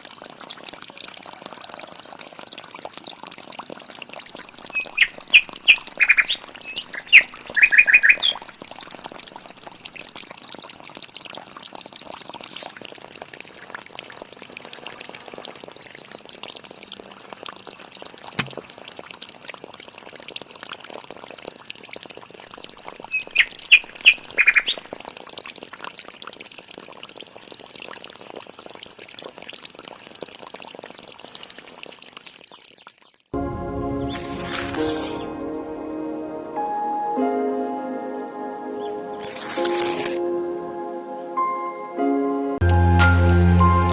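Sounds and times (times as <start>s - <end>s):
water pouring and splashing: 0.0s - 35.4s, 39.0s - 40.4s
bird squawking calls: 4.6s - 8.5s, 23.0s - 24.9s.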